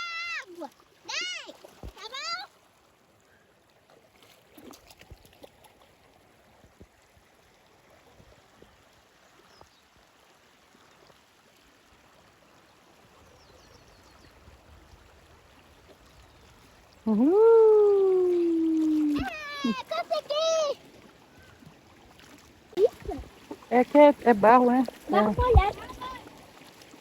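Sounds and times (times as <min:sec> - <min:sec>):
stream water rushing: 0:00.0 - 0:03.3, 0:14.0 - 0:27.0.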